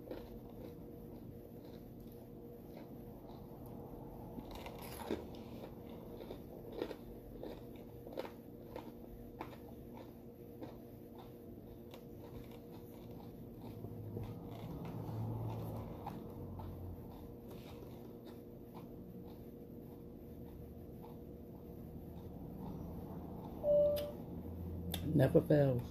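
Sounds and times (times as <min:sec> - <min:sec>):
person chewing crunchy food: 0:00.0 - 0:23.6.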